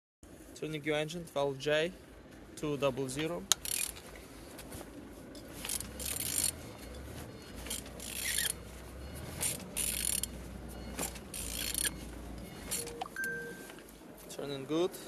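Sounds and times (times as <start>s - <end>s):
ratchet wrench rasping: 3.5s - 4.0s, 5.5s - 8.6s, 9.2s - 13.0s
low hum: 3.5s - 15.0s.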